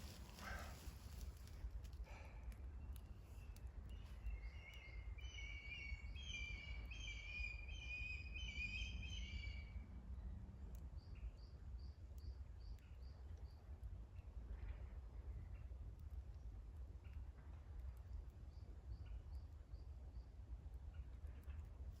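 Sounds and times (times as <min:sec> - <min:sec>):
low outdoor rumble: 0:00.0 - 0:07.6
songbird warbling chirps: 0:02.8 - 0:09.8.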